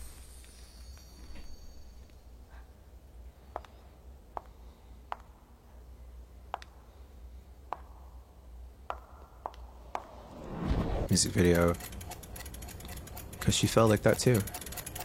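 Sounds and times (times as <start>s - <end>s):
low hum: 5.6s - 13.5s.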